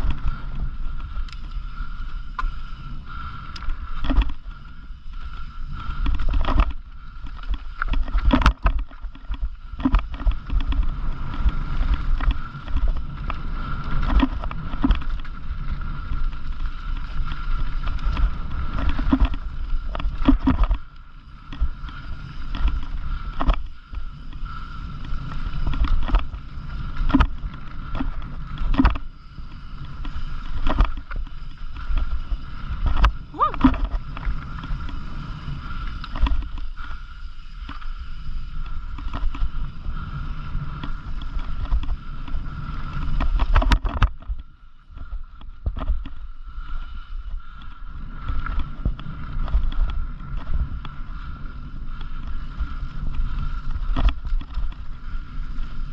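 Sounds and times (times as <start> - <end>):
wind and tyre rumble: 0.0 - 55.9
bike knocks and rattles: 3.6 - 36.8, 40.8 - 46.2.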